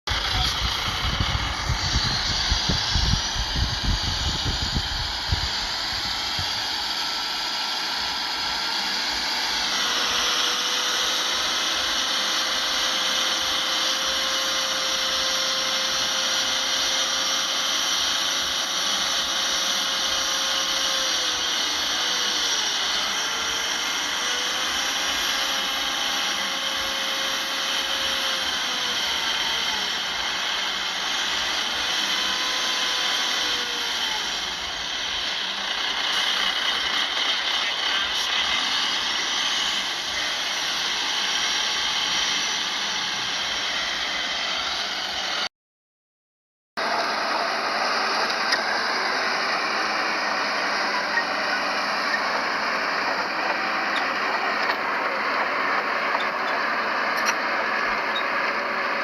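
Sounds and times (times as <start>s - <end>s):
low rumbling: 0.1s - 6.8s
high whine: 0.1s - 11.6s
heavy machinery engine running: 0.1s - 45.5s, 46.8s - 59.0s.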